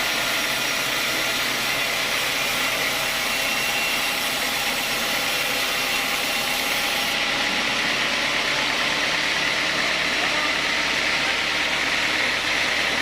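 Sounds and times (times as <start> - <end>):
saw cutting through log: 0.0 - 13.0.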